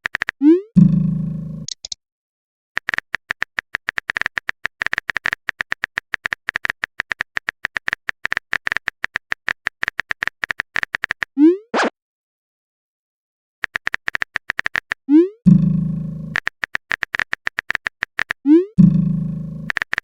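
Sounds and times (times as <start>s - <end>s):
fast typing clicks: 0.0s - 0.4s, 1.6s - 2.0s, 2.8s - 11.3s, 13.6s - 15.0s, 16.3s - 18.4s, 19.7s - 20.0s.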